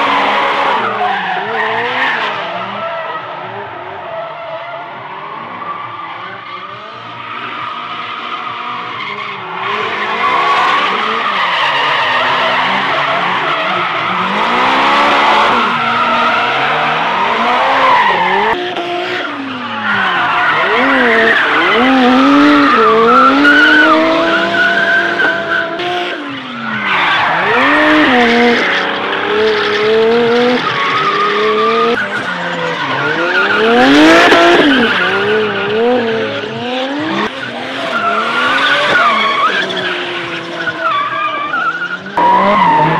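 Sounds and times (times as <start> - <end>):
tyres skidding and squealing: 0.0 - 42.9
car engine revving hard: 9.5 - 19.4, 20.5 - 26.3, 27.1 - 40.7.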